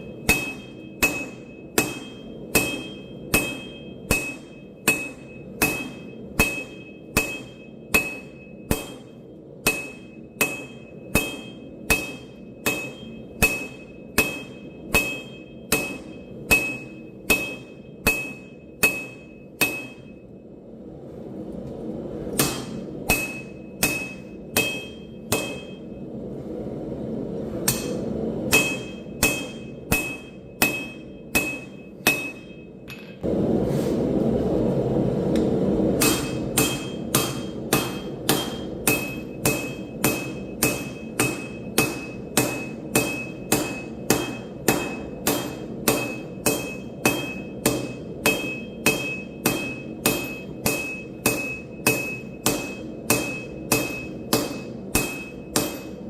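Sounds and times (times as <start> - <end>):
hammer striking steel on anvil: 0.0 - 20.4, 22.3 - 26.0, 27.6 - 33.3, 35.3 - 56.0
steady rushing noise: 20.2 - 31.1, 33.2 - 42.1.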